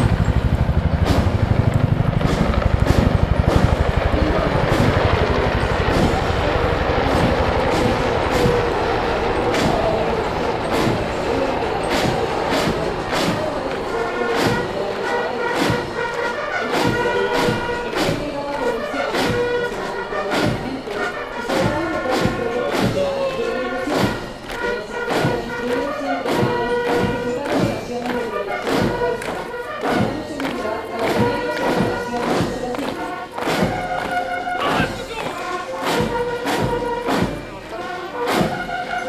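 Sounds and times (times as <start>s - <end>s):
bass drum beating: 0.0s - 13.8s
military band playing a march: 0.0s - 39.0s.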